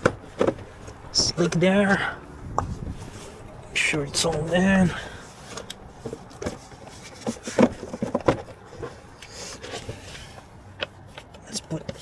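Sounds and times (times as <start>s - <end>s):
plastic knocks and scrapes: 0.0s - 1.4s, 5.5s - 9.0s.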